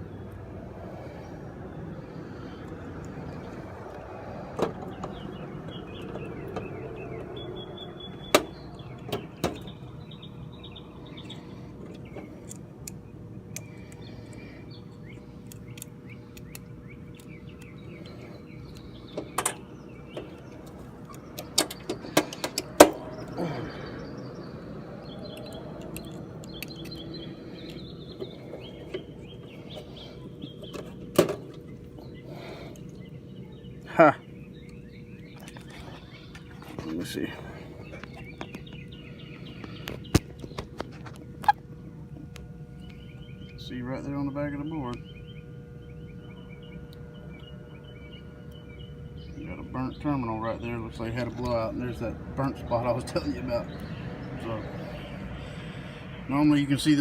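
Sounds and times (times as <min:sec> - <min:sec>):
birds chirping: 0:00.0 - 0:57.0
faint steady hum: 0:00.0 - 0:57.0
sharp clicks and snaps from wiring: 0:15.4 - 0:18.1, 0:25.3 - 0:27.8.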